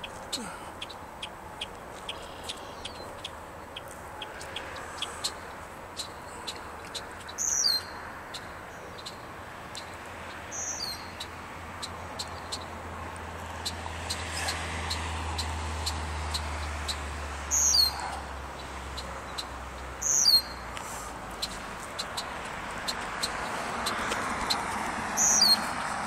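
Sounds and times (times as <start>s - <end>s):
quick sharp high ticks: 11.2s - 26.0s.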